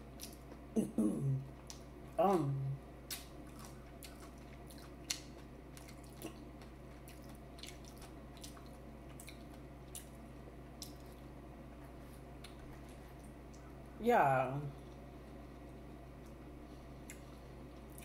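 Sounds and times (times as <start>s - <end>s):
wet chewing and mouth clicks: 3.1s - 10.2s, 10.8s - 11.3s.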